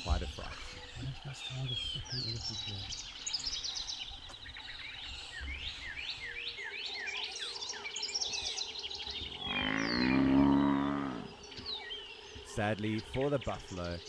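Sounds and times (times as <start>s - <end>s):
birds calling: 0.0s - 14.0s
low drawn-out animal call: 9.3s - 11.4s.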